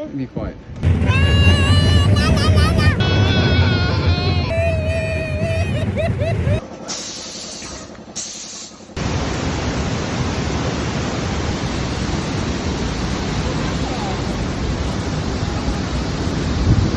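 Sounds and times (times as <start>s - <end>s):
waterfall rushing: 9.0s - 16.9s.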